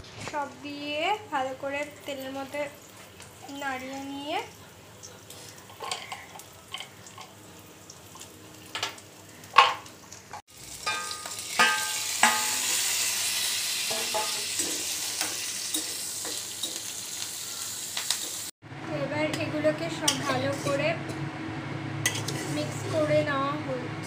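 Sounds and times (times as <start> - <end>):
food sizzling in hot oil: 0.3 - 18.6
metal spatula clinking on wok: 10.8 - 12.7.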